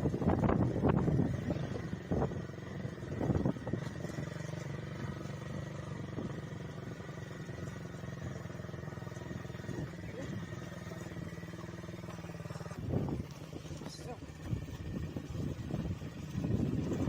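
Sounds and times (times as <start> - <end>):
wind noise on microphone: 0.0 - 4.2, 12.8 - 13.8, 14.4 - 17.0
motorcycle engine running: 0.0 - 17.0.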